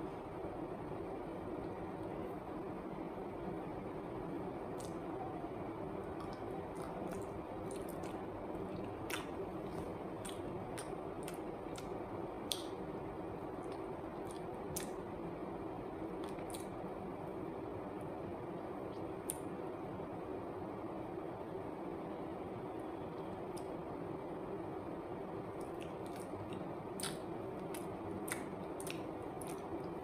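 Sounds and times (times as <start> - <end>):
steady background hum: 0.0 - 30.0
lip-smack clicks: 4.8 - 5.0, 9.1 - 12.8, 19.2 - 19.6, 25.6 - 30.0
wet chewing mouth sounds: 6.2 - 12.8, 13.6 - 15.0, 16.2 - 16.7, 25.6 - 30.0.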